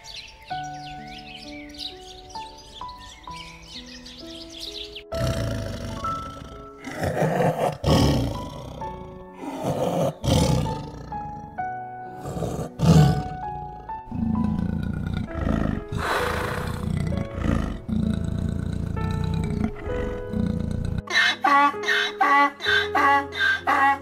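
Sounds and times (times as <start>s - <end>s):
leopard growling: 5.1s - 11.6s, 12.2s - 21.2s.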